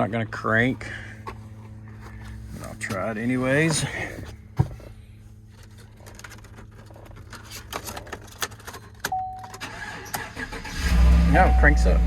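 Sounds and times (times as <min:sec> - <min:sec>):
clicks and handling noises: 0:05.5 - 0:09.6
vehicle chime tone: 0:09.1 - 0:09.9, 0:11.2 - 0:12.0.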